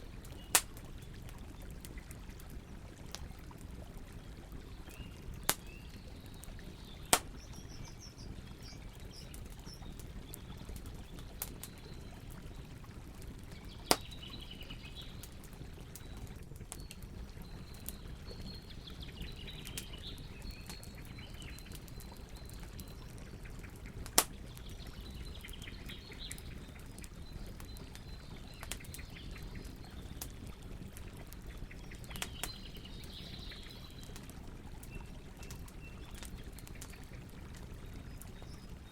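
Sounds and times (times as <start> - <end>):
campfire crackling: 0.0 - 38.9
birds chirping: 31.6 - 34.2.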